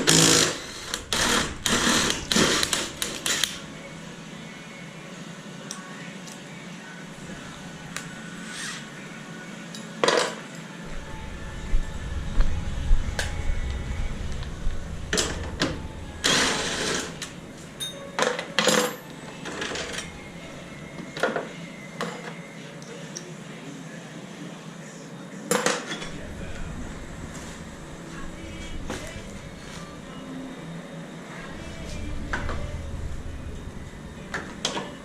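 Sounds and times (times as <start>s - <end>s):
low rumble: 0.0s - 4.4s, 10.9s - 18.2s, 19.1s - 21.0s, 26.0s - 35.0s
rushing noise: 0.0s - 4.6s, 10.8s - 18.2s, 19.0s - 21.0s, 26.0s - 35.0s
metal tools clinking: 17.8s - 20.1s.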